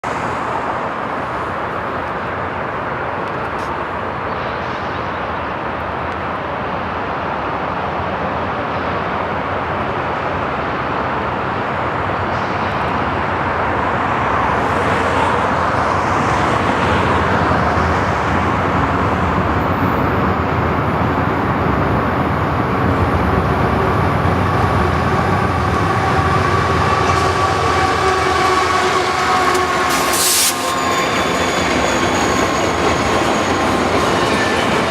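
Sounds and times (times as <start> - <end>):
freight train wheels rumbling on rail: 0.0 - 34.9
wheel squeal: 29.0 - 34.9.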